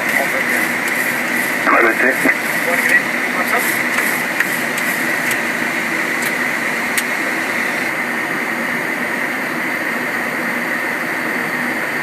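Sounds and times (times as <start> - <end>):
jet engines hissing: 0.0 - 8.6
airflow rushing in cockpit: 0.0 - 10.1.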